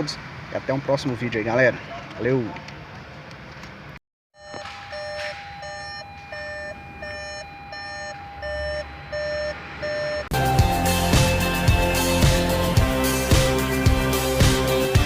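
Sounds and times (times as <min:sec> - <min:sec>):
short electronic beeps: 0:04.4 - 0:10.3
steady high tone: 0:04.4 - 0:12.8
music: 0:10.3 - 0:15.0.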